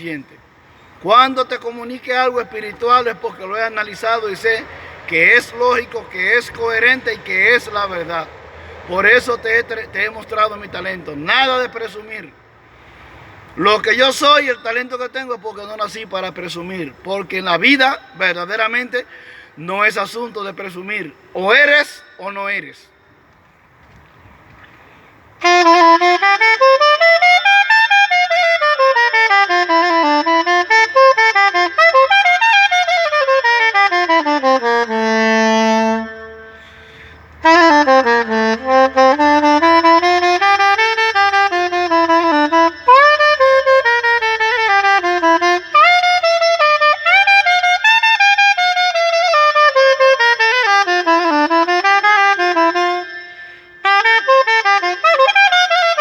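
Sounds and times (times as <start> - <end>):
soprano saxophone melody: 4.6 - 11.3, 25.4 - 56.0.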